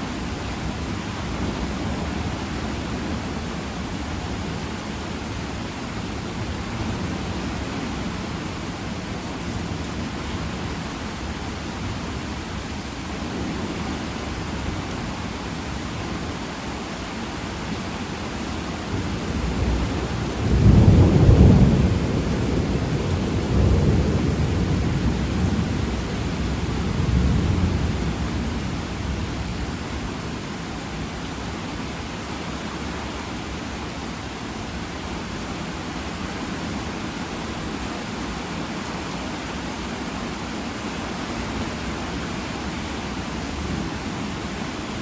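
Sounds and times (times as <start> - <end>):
heavy rain hissing: 0.0 - 45.0
thunder rumbling: 18.9 - 29.8.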